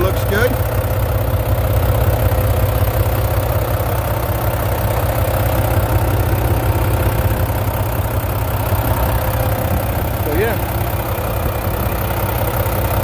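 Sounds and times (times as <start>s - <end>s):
truck diesel engine idling: 0.0s - 13.0s.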